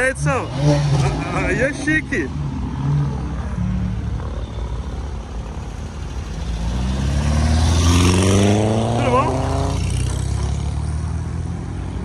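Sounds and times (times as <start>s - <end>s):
cars engine rumble: 0.0s - 12.0s
car engine accelerating past: 6.4s - 11.5s.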